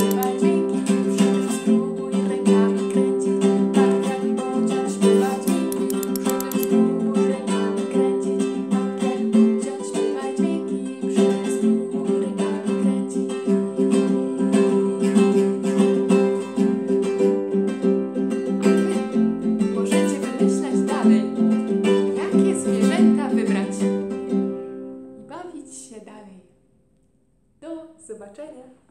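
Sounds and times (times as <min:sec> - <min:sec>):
acoustic guitar strumming: 0:11.6 - 0:25.9.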